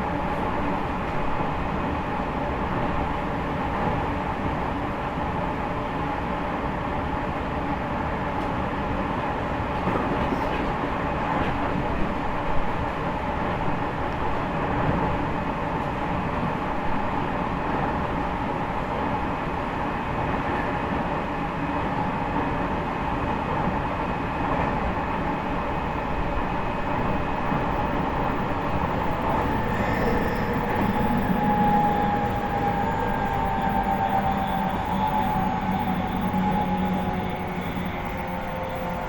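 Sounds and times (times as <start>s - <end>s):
train motors and wheels rumbling: 0.0s - 39.0s.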